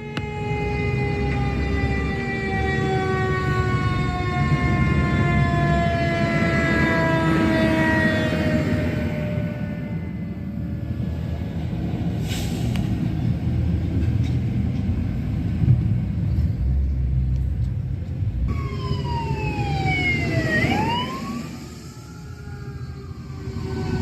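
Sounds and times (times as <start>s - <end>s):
siren: 0.0s - 11.2s, 18.5s - 24.0s
fire engine rumbling: 0.0s - 24.0s.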